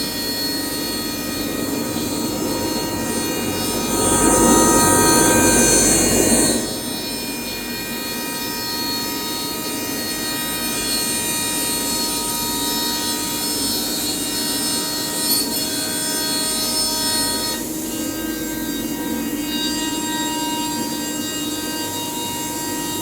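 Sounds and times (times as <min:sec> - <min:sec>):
cnc router whine: 0:00.0 - 0:23.0
rushing noise: 0:00.6 - 0:07.8.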